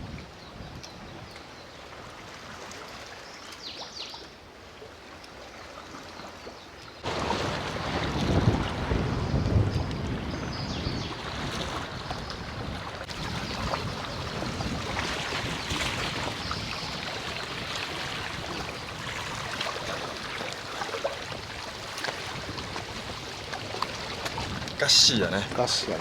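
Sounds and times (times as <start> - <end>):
sea waves washing ashore: 7.0 - 26.0
wind buffeting microphone: 7.0 - 26.0.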